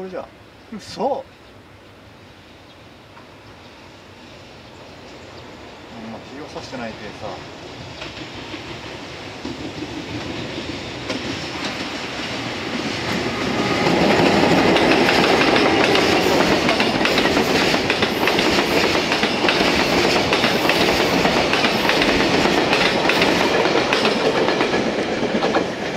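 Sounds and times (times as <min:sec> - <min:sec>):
freight train rumble: 0:02.5 - 0:25.9
wagon wheels clacking over rail joints: 0:13.9 - 0:25.9.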